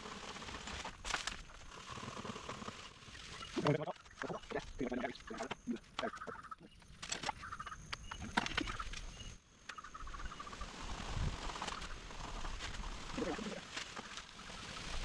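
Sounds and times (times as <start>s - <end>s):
clicks and rustles: 0.3s - 9.8s.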